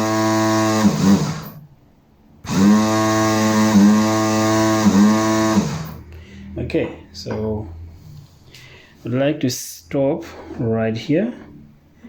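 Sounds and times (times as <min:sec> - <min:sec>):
generator electric hum: 0:00.0 - 0:07.7.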